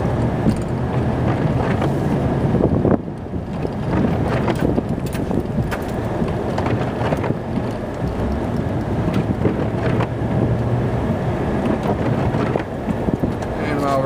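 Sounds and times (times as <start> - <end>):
knocks and rattles: 0.0 - 2.0, 3.4 - 10.7, 11.5 - 13.6
truck engine and road rumble: 0.0 - 14.0.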